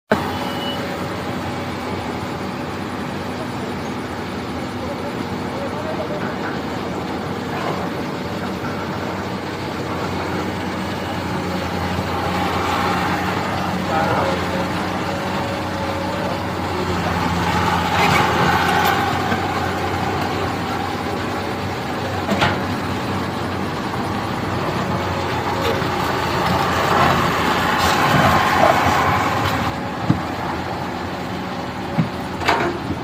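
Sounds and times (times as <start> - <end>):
heavy diesel engines running: 0.1 - 33.0.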